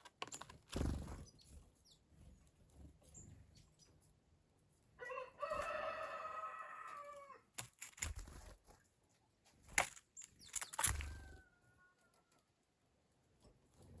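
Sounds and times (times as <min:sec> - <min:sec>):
rooster crowing: 0:05.0 - 0:07.4, 0:11.0 - 0:12.4.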